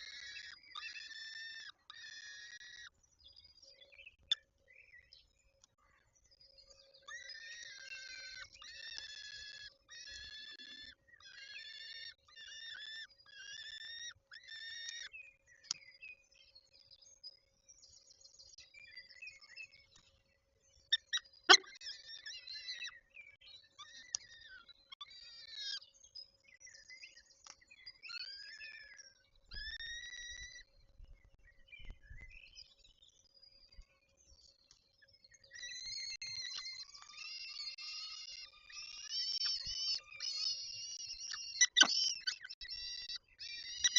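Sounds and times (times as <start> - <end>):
falcons calling harshly: 21.5 - 21.7.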